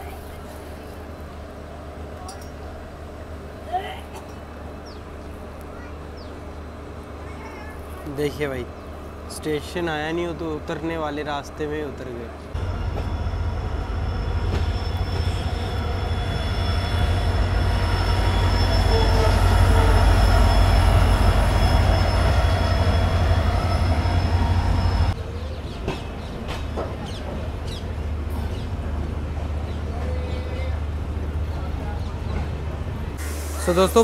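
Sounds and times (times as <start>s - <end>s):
train rumbling: 0.0s - 34.0s
wheel squeal on rails: 13.0s - 25.2s.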